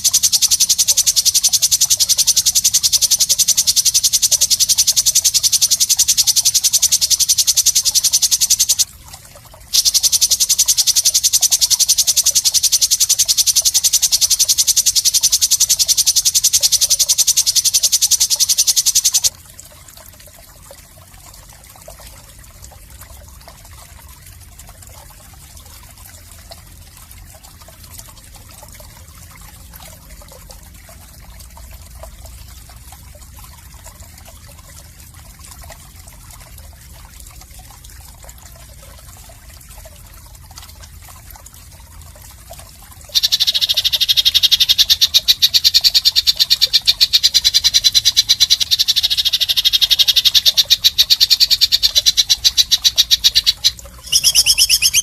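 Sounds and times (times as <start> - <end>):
bird buzzing trill: 0.0 - 8.9, 9.8 - 19.3, 43.2 - 55.0
quiet trickling water-like noise: 0.0 - 55.0.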